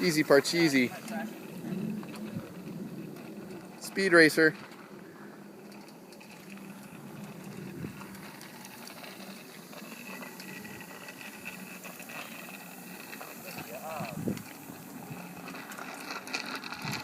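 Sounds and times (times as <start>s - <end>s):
low hum: 4.5s - 16.9s.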